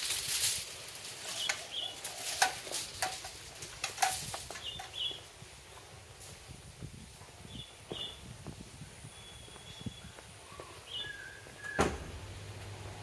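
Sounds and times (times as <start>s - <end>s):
wings flapping rustle: 0.0s - 5.1s
birds chirping high: 1.3s - 2.4s, 4.5s - 5.3s, 7.4s - 12.1s.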